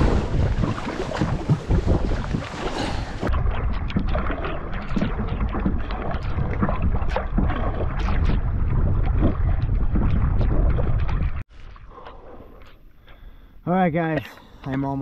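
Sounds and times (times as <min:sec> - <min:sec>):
wind buffeting microphone: 0:00.0 - 0:11.4
water splashing against canoe: 0:00.0 - 0:13.2.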